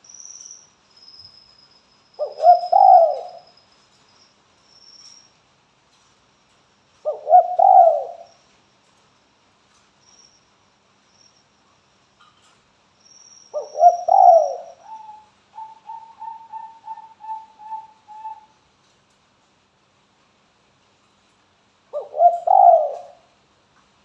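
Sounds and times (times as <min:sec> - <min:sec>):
dove cooing: 0:02.2 - 0:03.4, 0:07.0 - 0:08.3, 0:13.6 - 0:18.5, 0:21.9 - 0:23.3.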